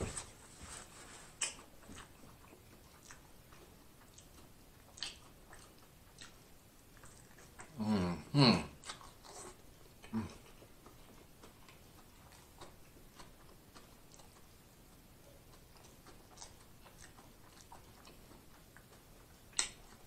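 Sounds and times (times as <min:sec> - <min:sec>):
person chewing with wet clicks: 0:01.3 - 0:07.8, 0:08.7 - 0:20.0
person humming mm: 0:07.7 - 0:08.8, 0:10.0 - 0:10.5.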